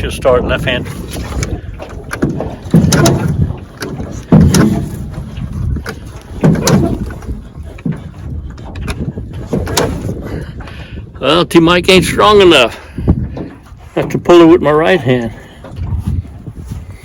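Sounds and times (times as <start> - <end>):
starter rope pulled: 0.7 - 8.1, 8.7 - 10.2
outboard engine turning over: 1.0 - 10.3.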